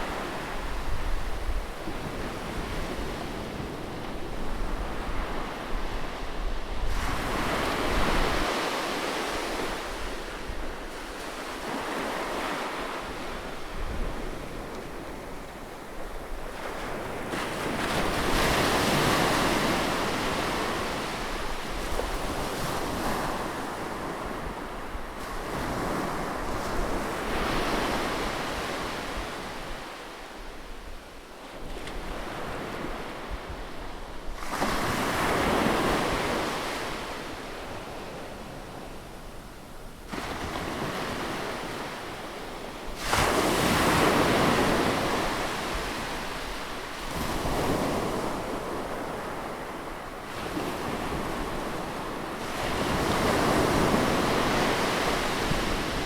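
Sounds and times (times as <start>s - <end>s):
wind: 0.0s - 56.0s
sea waves breaking on shore: 34.4s - 56.0s.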